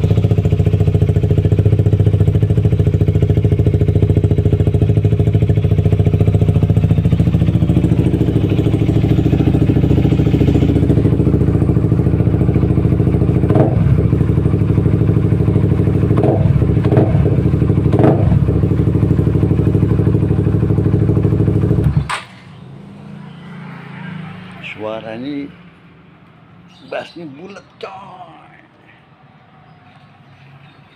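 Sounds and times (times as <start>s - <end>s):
motorcycle engine idling: 0.0s - 23.4s.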